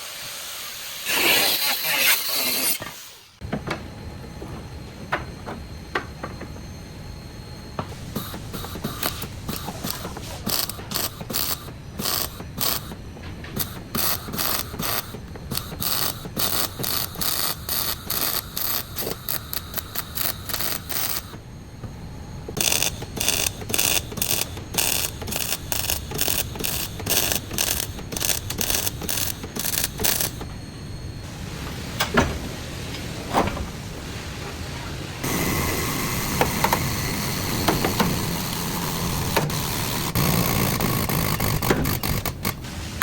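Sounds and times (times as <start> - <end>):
ratchet wrench clicking: 22.6 - 30.4.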